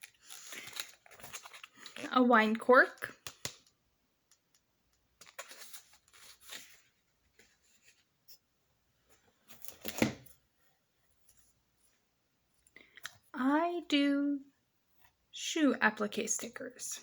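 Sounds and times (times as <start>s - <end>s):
packaging rustling: 0.0s - 2.2s, 5.2s - 8.0s.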